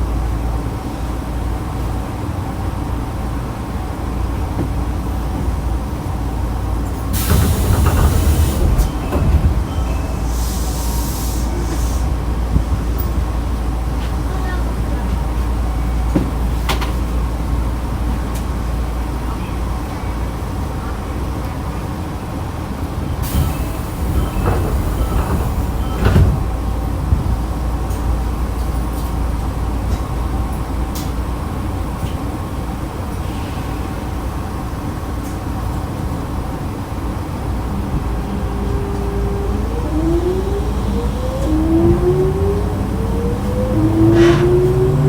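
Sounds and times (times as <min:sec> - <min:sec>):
clunks: 0:07.0 - 0:10.5, 0:23.2 - 0:27.4, 0:37.7 - 0:45.0
electric train motor whine: 0:37.7 - 0:45.0.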